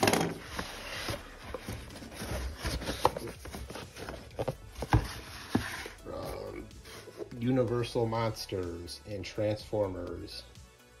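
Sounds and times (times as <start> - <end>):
taps and rustles of packaging: 0.0 - 6.0.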